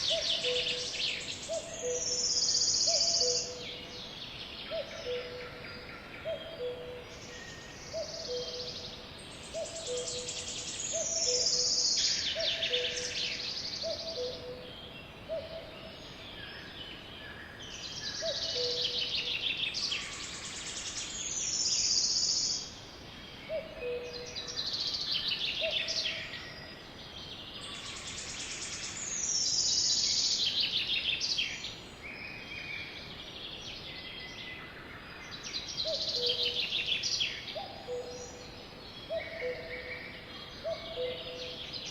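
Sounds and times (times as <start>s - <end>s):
bird song with whistles and trills: 0.0s - 4.0s, 4.6s - 14.7s, 17.8s - 22.7s, 23.5s - 26.7s, 35.3s - 41.9s.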